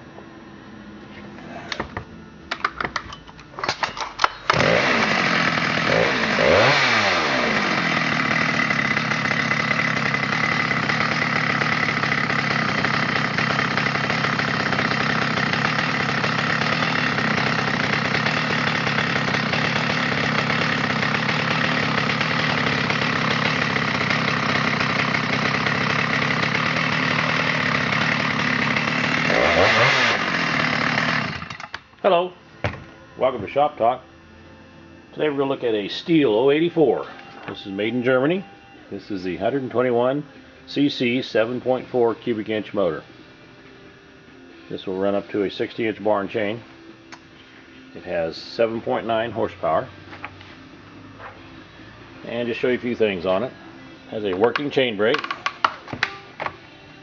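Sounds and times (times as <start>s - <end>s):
chainsaw engine sputtering and revving: 4.5s - 31.7s.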